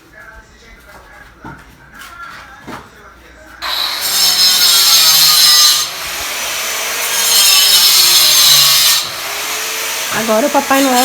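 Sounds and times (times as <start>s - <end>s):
power tool cutting: 3.6s - 11.0s.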